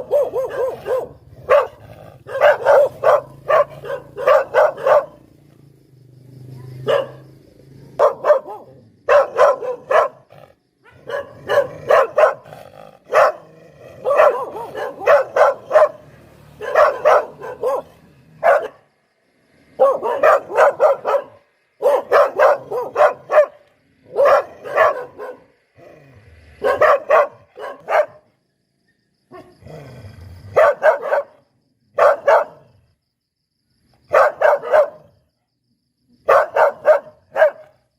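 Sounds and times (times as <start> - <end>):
dog barking sharply: 0.0 - 5.2, 6.6 - 7.2, 8.0 - 10.2, 10.8 - 12.5, 13.1 - 16.0, 16.6 - 18.8, 19.8 - 25.5, 26.6 - 28.2, 30.6 - 31.4, 32.0 - 32.6, 34.1 - 35.1, 36.3 - 37.8.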